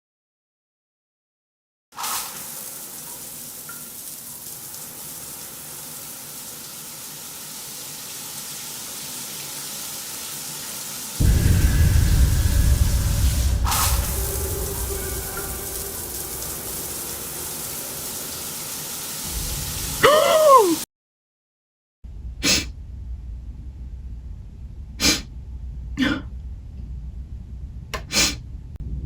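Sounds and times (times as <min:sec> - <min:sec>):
shower water hissing: 0:02.0 - 0:20.9, 0:24.9 - 0:25.4
sharp crack: 0:11.2 - 0:18.0
loud deep rumble: 0:11.2 - 0:20.0, 0:22.0 - 0:29.0.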